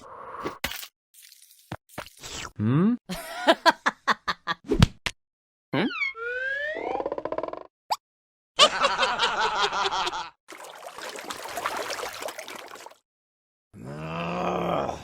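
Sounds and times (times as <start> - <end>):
cartoon snickering giggle: 3.1 - 4.6.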